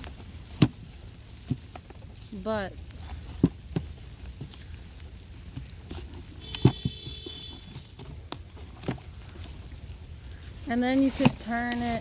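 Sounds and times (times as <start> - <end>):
knocks and thumps from compost bin: 6.4 - 9.2.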